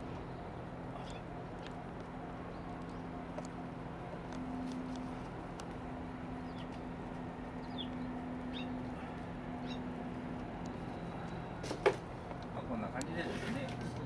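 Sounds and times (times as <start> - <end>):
steady low hum: 0.0 - 14.0
small bird chirping: 7.6 - 8.8, 9.6 - 9.8.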